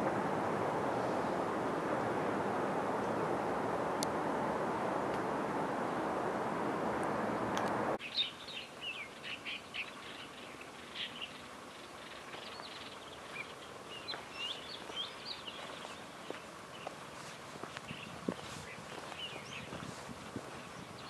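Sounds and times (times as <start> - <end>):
small birds chirping: 8.0 - 21.0.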